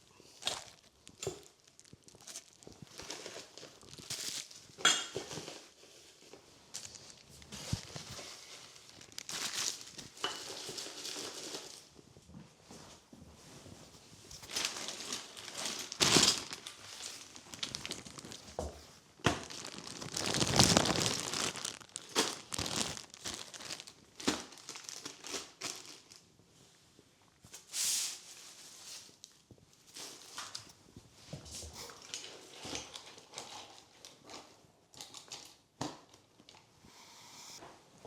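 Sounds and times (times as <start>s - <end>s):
packaging crinkling: 0.3s - 11.9s, 14.3s - 26.2s.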